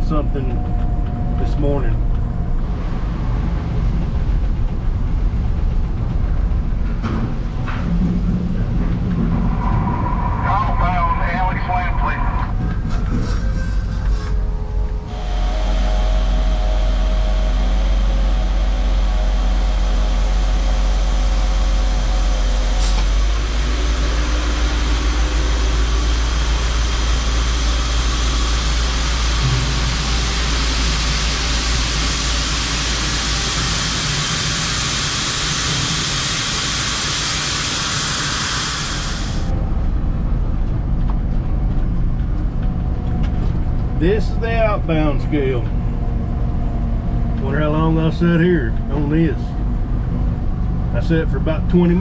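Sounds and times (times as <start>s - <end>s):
diesel engine running: 0.0s - 52.0s
steady hiss: 25.0s - 39.5s.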